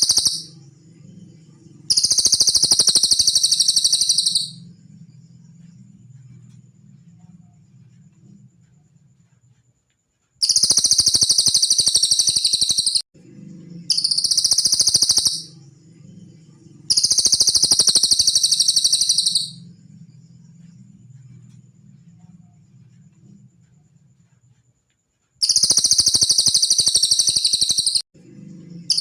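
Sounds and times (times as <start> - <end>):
bird trilling high-pitched: 0.0 - 0.6, 1.9 - 4.6, 10.4 - 13.0, 13.9 - 15.6, 16.9 - 19.6, 25.4 - 28.0
faint low hum: 0.0 - 10.4, 13.2 - 25.4, 28.2 - 29.0.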